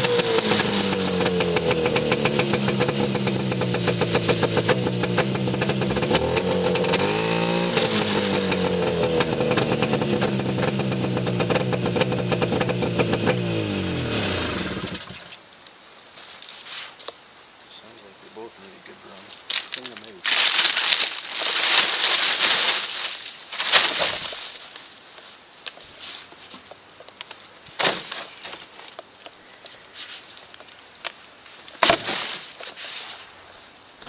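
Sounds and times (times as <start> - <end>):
snowmobile engine running: 0.0 - 15.2.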